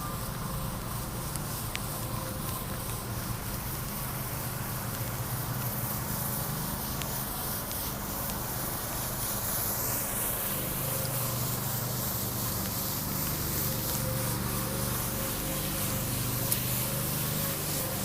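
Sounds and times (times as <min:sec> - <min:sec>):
constant hiss: 0:00.0 - 0:18.0
vehicle engine hum: 0:00.0 - 0:18.0.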